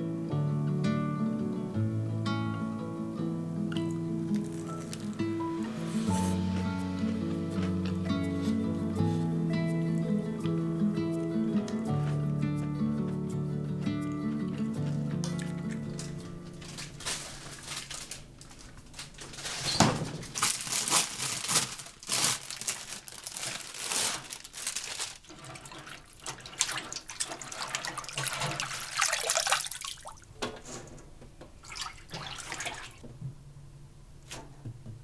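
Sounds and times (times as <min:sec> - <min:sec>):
tap water splashing into sink: 0:25.3 - 0:33.0.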